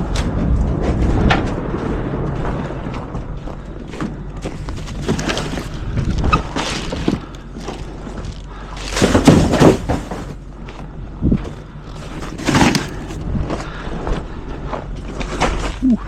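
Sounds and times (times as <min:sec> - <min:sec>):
low steady rumble: 0:00.0 - 0:16.0
thumps and knocks: 0:08.9 - 0:10.4.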